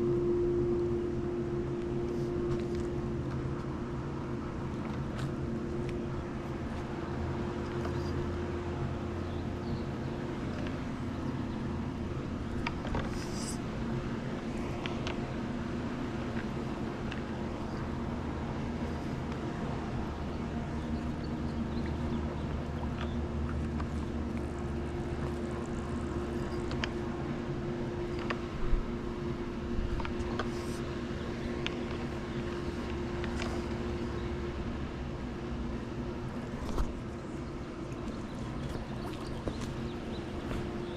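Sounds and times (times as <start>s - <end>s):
pool pump motor humming: 0.0s - 40.9s.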